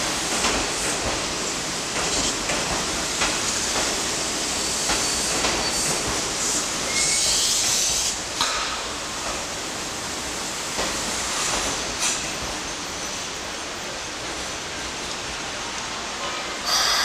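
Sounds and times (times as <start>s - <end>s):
train running rumble: 0.0s - 17.0s
burst of hiss: 4.5s - 8.2s.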